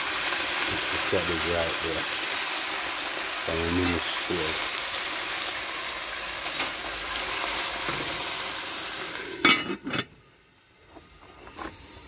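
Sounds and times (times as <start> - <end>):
vegetables sizzling in a pot: 0.0 - 12.0.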